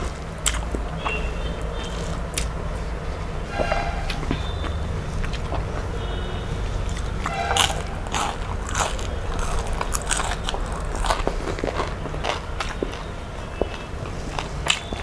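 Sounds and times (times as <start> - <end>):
chewing and lip-smacking: 0.0 - 3.3, 4.1 - 5.9, 6.7 - 15.0
low hum: 0.0 - 12.1
sharp mouth clicks: 0.4 - 2.6.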